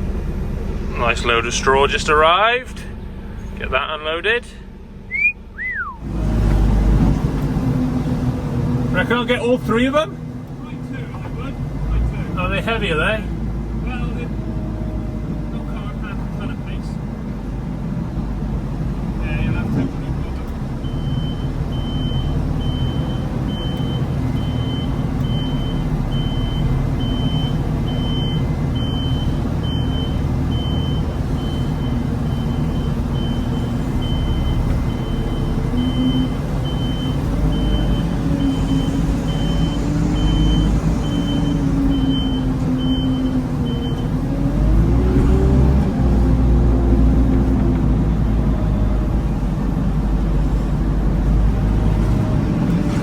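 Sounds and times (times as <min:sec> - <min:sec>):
diesel engine running: 0:00.0 - 0:53.0
reversing alarm beeping: 0:05.0 - 0:06.0, 0:20.8 - 0:44.2.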